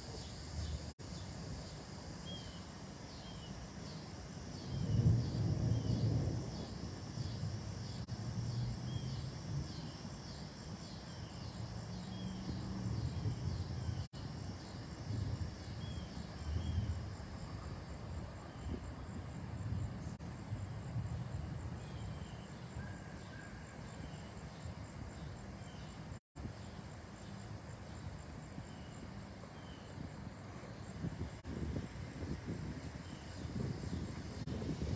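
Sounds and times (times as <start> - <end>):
insects chirping: 0.0 - 34.9
storm wind gusting: 4.1 - 10.2, 31.0 - 34.9.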